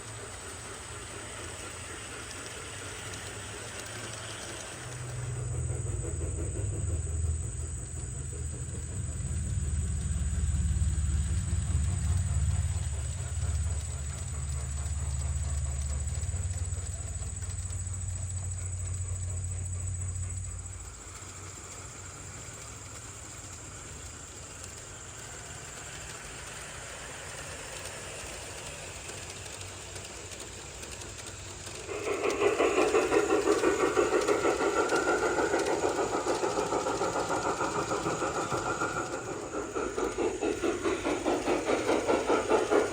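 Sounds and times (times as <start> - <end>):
model train rumbling: 0.0 - 42.9
pulsing engine: 0.0 - 42.9.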